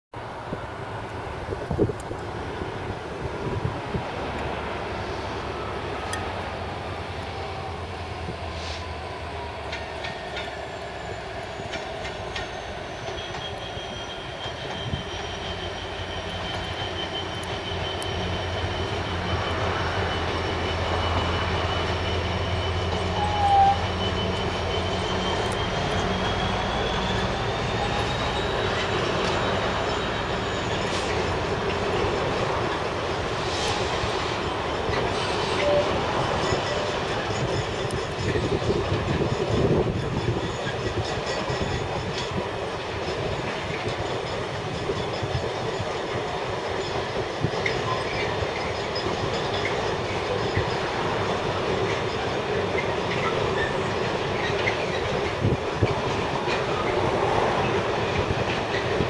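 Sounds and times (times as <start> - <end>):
diesel locomotive engine drone: 0.1 - 59.0
rumble of train wheels: 0.1 - 59.0
wheel flanges squealing: 4.8 - 59.0
short sharp squeak: 10.7 - 31.3, 51.9 - 55.2.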